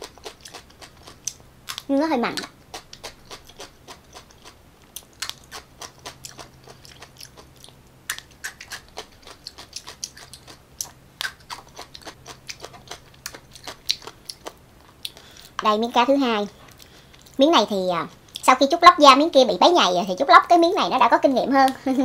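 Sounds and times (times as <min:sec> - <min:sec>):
crunchy chewing of pickled radish: 0:00.0 - 0:15.6, 0:16.5 - 0:17.4.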